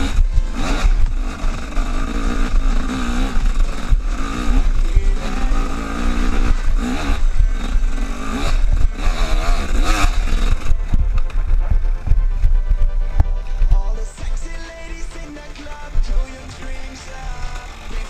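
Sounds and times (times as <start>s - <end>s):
motorcycle engine revving: 0.0s - 18.0s
wind rumble on microphone: 6.5s - 14.5s.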